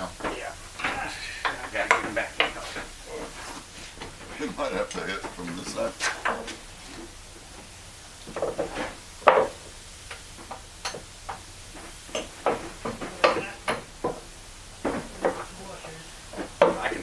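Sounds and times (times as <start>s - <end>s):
hammer striking bolts: 8.3s - 15.6s.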